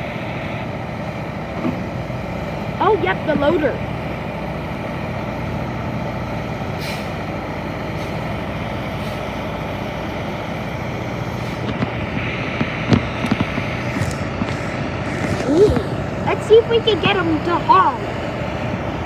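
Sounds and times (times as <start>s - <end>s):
heavy diesel engines running: 0.0s - 19.0s
brief hiss: 6.8s - 7.2s.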